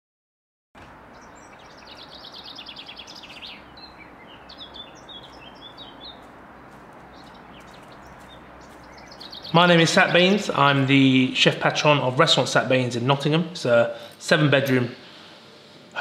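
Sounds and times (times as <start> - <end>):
bird trilling and chirping: 1.1 - 10.8
background hiss: 8.9 - 16.0.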